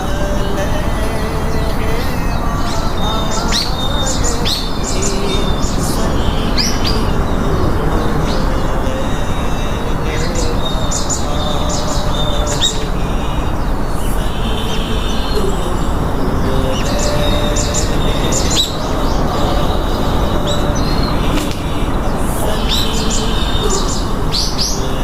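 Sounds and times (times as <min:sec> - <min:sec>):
small birds chirping: 0:00.0 - 0:25.0
steady noisy background: 0:00.0 - 0:25.0.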